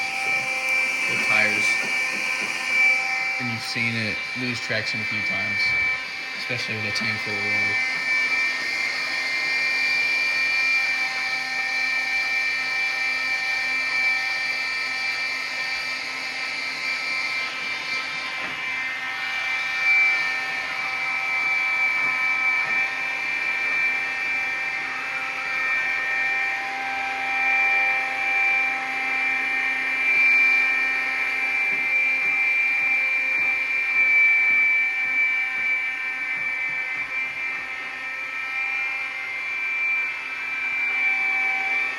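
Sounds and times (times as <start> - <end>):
robot motor high-pitched whine: 0.0 - 26.1.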